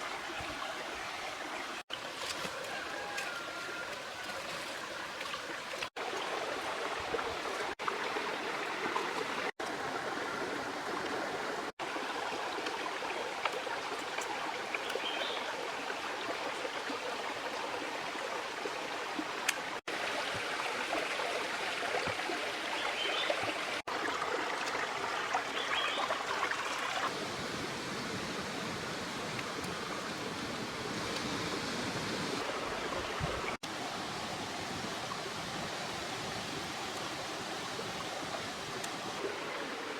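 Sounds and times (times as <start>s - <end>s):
river water rushing: 18.9s - 39.9s.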